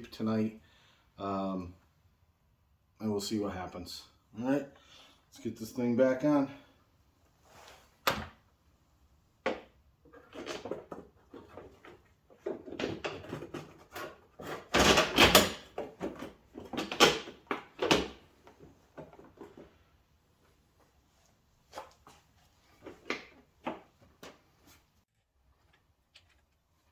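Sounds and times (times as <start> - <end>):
plastic part knocking and scraping: 9.5 - 18.1.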